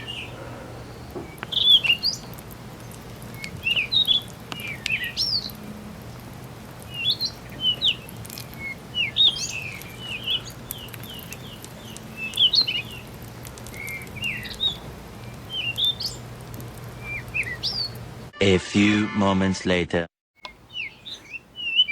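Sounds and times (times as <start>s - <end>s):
birds chirping: 0.0s - 19.0s, 20.4s - 21.9s.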